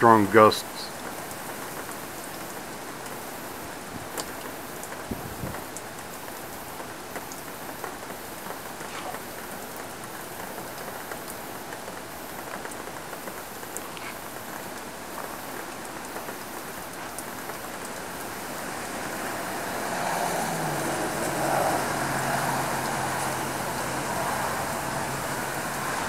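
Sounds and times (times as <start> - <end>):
wind and rain rushing: 0.9 - 26.0.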